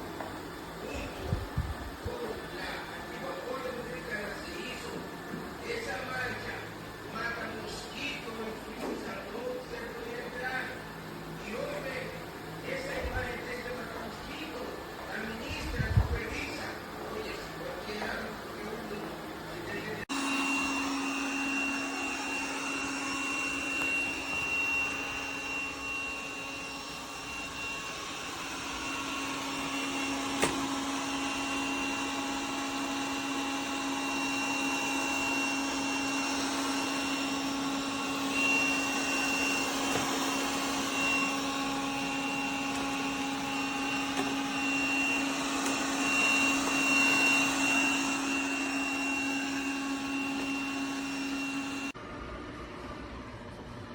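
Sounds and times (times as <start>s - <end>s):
robot vacuum motor humming: 17.5s - 52.0s.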